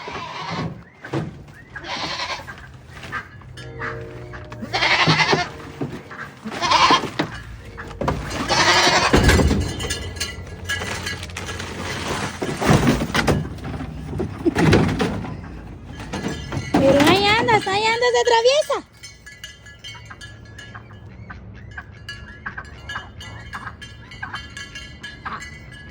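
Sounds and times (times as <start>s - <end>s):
goats bleating: 0.0s - 0.9s, 1.8s - 9.9s.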